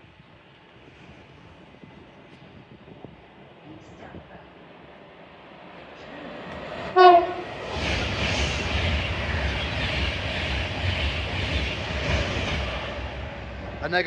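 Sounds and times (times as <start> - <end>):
train passing at speed: 0.0 - 14.0
train horn: 6.9 - 7.5.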